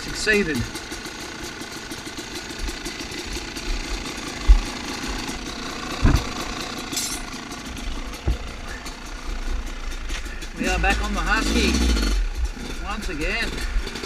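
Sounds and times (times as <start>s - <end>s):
dirt bike engine idling: 0.0s - 14.0s
low thump: 6.0s - 6.5s, 8.2s - 8.6s.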